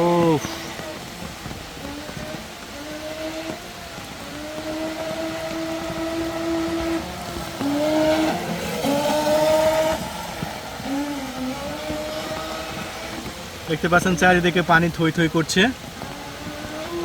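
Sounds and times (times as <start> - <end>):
model boat motor whining: 0.0 - 17.0.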